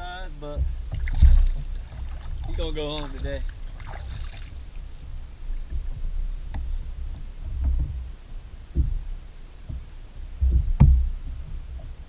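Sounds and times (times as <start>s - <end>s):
wind buffeting microphone: 0.0s - 12.0s
dull thumps: 0.5s - 12.0s.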